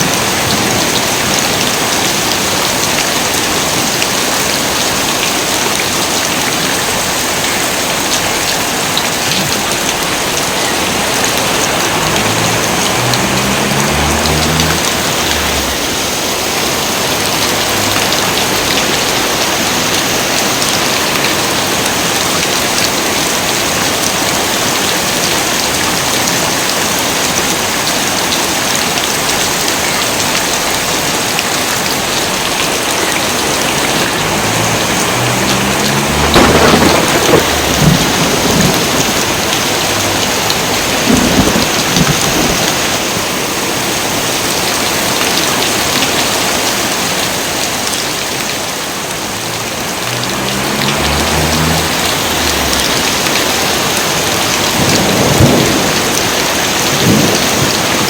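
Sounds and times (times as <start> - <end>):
heavy rain pouring: 0.0 - 58.0
thunder rumbling: 9.7 - 19.2, 33.3 - 43.0, 49.6 - 58.0.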